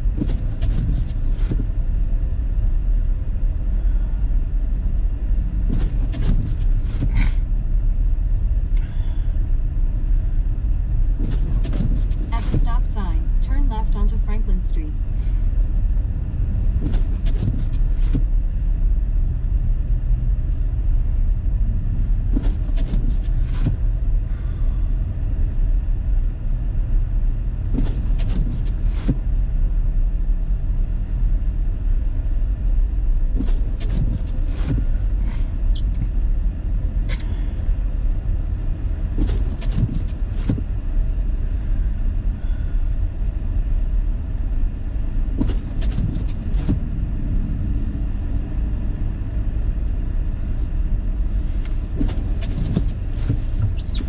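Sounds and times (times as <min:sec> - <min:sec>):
car driving on snow: 0:00.0 - 0:54.0.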